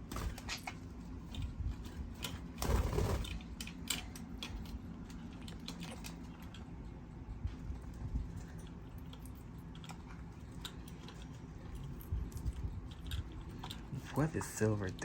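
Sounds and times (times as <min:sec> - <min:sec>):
bird scuffle: 0:00.0 - 0:03.6
birds tearing at greens: 0:00.0 - 0:15.0
beak clicks and crunches: 0:00.1 - 0:15.0.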